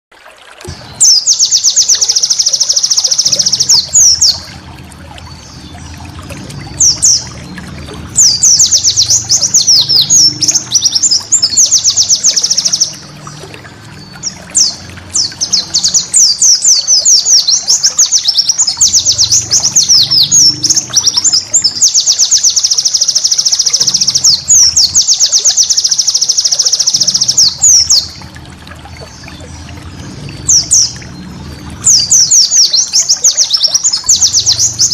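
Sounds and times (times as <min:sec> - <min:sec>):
bird chattering song: 0:01.0 - 0:04.5, 0:06.8 - 0:13.1, 0:14.0 - 0:28.2, 0:31.8 - 0:34.9
faint low rumble: 0:03.5 - 0:11.7.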